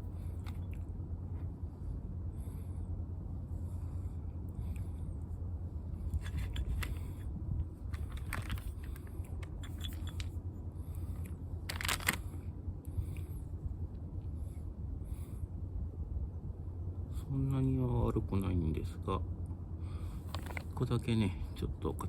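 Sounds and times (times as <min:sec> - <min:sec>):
steady low hum: 0:00.0 - 0:22.0
small parts clicking and clinking: 0:00.3 - 0:00.8, 0:06.1 - 0:07.3, 0:07.9 - 0:10.4, 0:11.1 - 0:12.3, 0:20.2 - 0:20.8.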